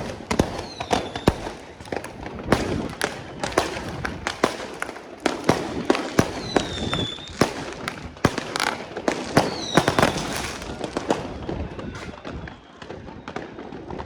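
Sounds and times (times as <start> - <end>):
firework whistle: 0.0 - 14.0
fireworks bangs and crackles: 0.0 - 14.0.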